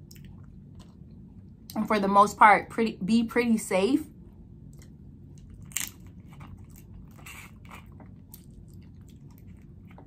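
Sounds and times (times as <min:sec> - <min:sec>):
person chewing with wet clicks: 0:00.0 - 0:01.8, 0:04.6 - 0:10.0.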